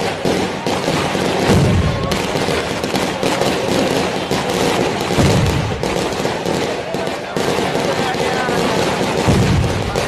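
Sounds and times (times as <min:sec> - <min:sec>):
fireworks crackling in a fire: 0:00.0 - 0:10.0.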